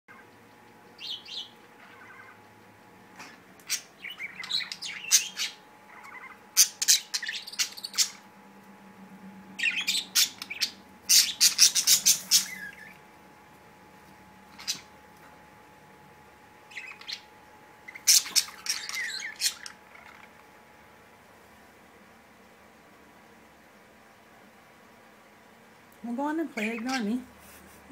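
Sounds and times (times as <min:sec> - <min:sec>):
budgerigars chirping: 0:00.1 - 0:08.2, 0:09.6 - 0:13.0, 0:14.5 - 0:15.0, 0:16.7 - 0:20.4, 0:26.6 - 0:27.2.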